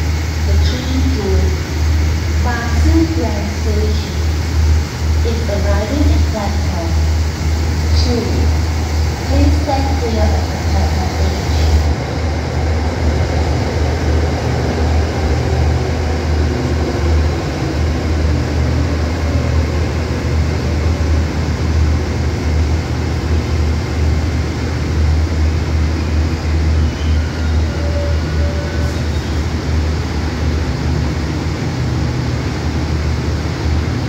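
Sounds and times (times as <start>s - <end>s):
train engine low rumble: 0.0s - 34.0s.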